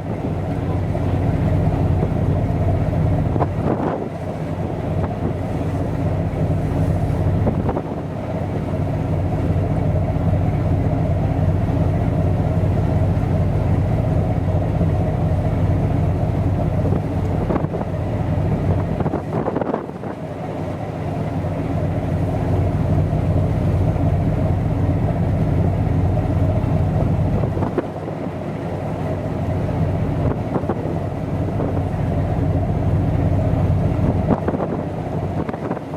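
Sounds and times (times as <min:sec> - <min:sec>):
wind on microphone: 0:00.0 - 0:08.2, 0:16.6 - 0:20.2, 0:30.0 - 0:35.9
ship engine droning: 0:00.0 - 0:35.9.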